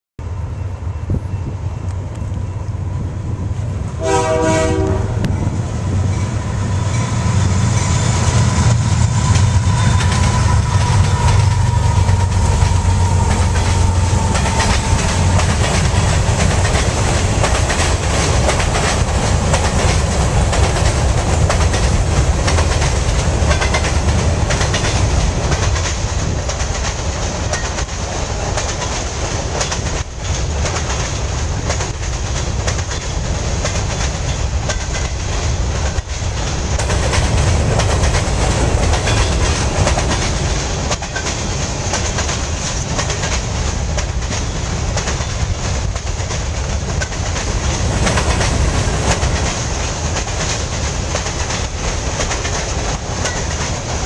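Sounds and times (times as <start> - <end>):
locomotives rumbling past: 0.2 - 54.0
train horn blast: 4.0 - 5.6
train cars clattering over rail joints: 9.3 - 54.0.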